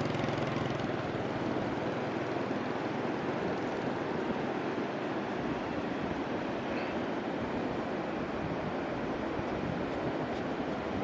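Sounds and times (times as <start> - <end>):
low engine hum: 0.0 - 11.0
sea surf washing: 0.0 - 11.0
wind buffeting microphone: 7.4 - 11.0.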